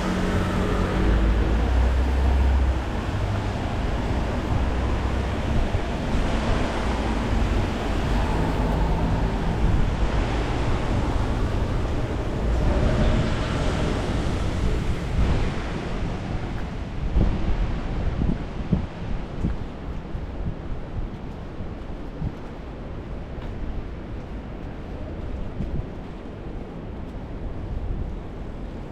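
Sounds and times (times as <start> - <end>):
road traffic: 0.0 - 20.4
rain: 0.0 - 28.9
wind buffeting microphone: 0.0 - 28.9.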